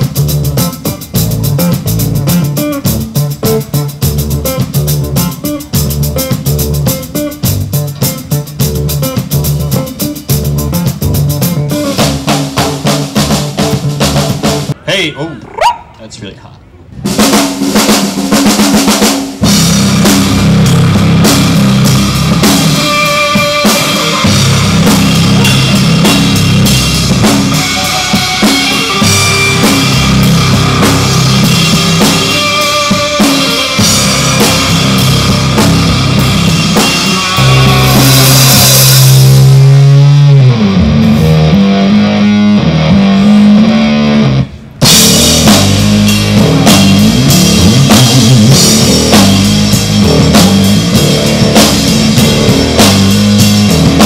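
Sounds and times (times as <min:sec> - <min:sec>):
rock band playing loudly: 0:00.0 - 0:14.8, 0:17.0 - 0:54.0
sliding wavering guitar tones: 0:21.7 - 0:44.5.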